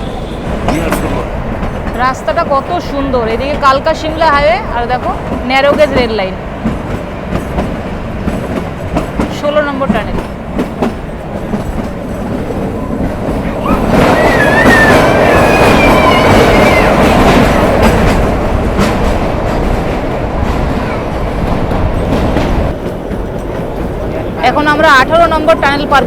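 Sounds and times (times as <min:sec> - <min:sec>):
train wheels rumbling on track: 0:00.0 - 0:26.0
wavering wheel squeal: 0:13.6 - 0:17.5.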